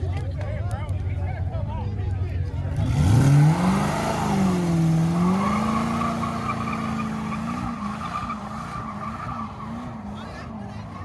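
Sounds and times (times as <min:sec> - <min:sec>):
car engine revving: 0:02.7 - 0:11.0.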